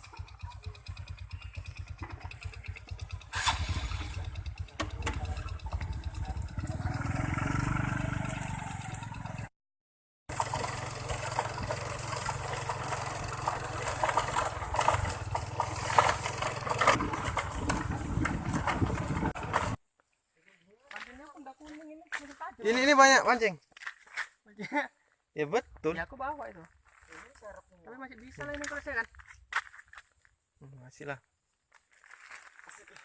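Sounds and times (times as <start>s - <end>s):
small engine running: 0.0s - 9.5s, 10.3s - 19.8s.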